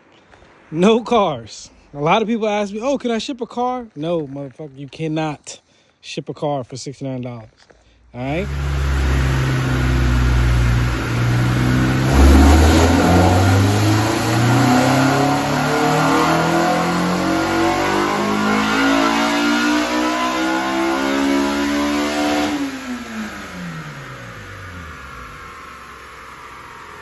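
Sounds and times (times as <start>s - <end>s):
car engine accelerating: 8.1s - 27.0s.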